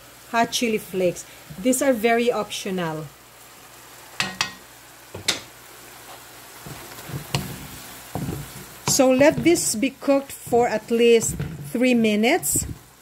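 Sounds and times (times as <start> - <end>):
meat sizzling in a frying pan: 0.0 - 13.0
wooden spoon knocking on pan: 4.2 - 5.5, 6.7 - 12.7.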